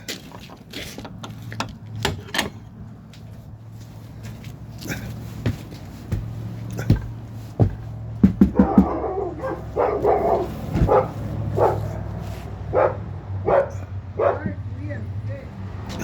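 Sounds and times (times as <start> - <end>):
sharp knocks: 5.5 - 9.1
dog barking: 8.5 - 14.7.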